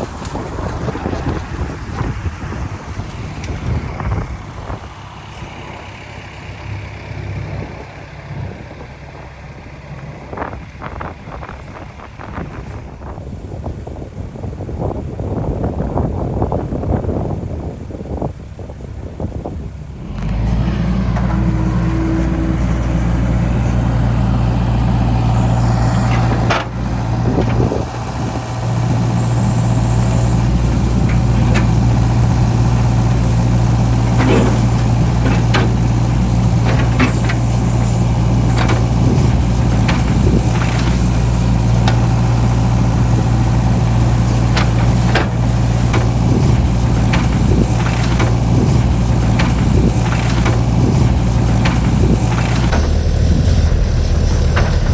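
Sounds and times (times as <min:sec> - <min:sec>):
excavator diesel engine running: 0:00.0 - 0:13.5, 0:19.7 - 0:54.9
sharp knocks and clatters: 0:34.0 - 0:41.2, 0:44.4 - 0:52.9.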